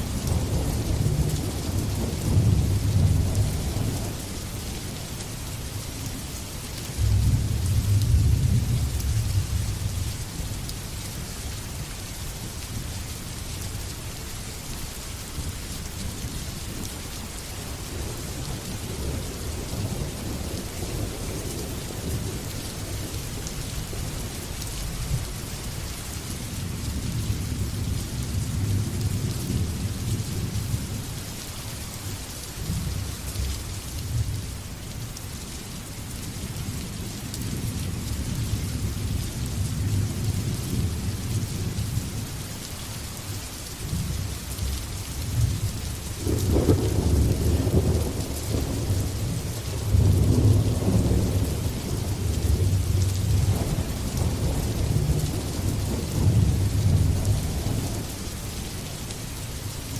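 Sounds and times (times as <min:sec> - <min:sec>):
rain falling: 0:00.0 - 0:59.9
thunder rumbling: 0:46.2 - 0:58.3.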